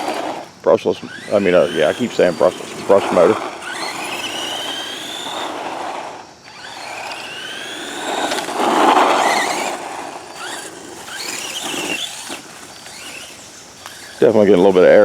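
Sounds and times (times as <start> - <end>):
rc truck electric motor whining: 0.0 - 15.0.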